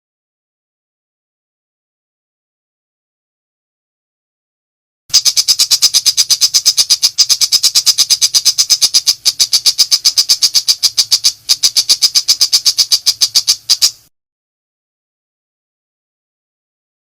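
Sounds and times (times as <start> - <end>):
bird giving harsh rapid calls: 5.1 - 14.1.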